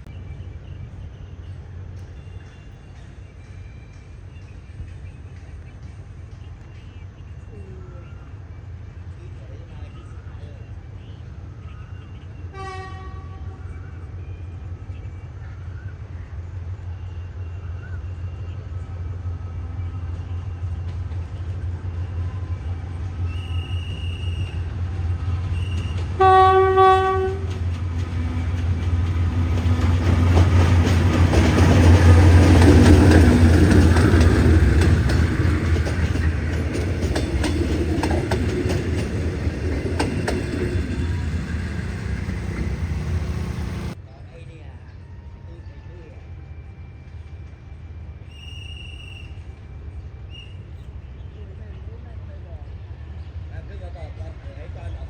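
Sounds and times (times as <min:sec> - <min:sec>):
train engine and wheel rumble: 0:00.0 - 0:55.0
train horn: 0:12.5 - 0:13.7, 0:25.5 - 0:27.6.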